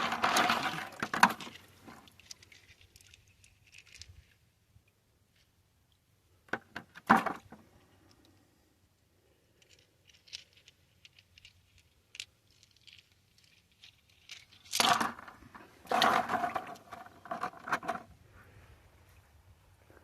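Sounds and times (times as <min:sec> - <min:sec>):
stones knocking in water: 0:14.8 - 0:18.0.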